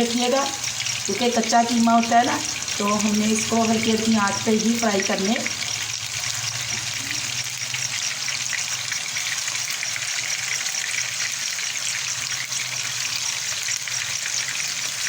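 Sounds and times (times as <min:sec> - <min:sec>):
kebabs sizzling in oil: 0:00.0 - 0:15.0.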